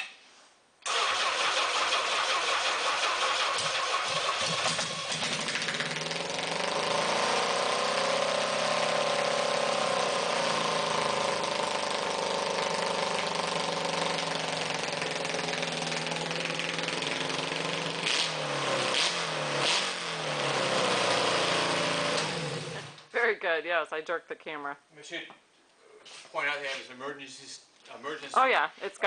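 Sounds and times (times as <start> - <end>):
motorcycle engine running: 4.1 - 23.0.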